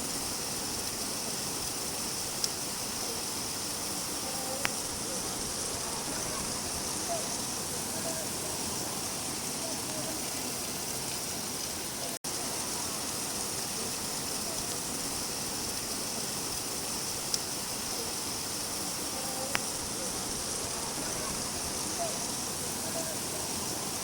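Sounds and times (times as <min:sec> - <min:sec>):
steady rain falling: 0:00.0 - 0:24.0
sharp drip ticks: 0:00.7 - 0:02.8, 0:13.6 - 0:17.9.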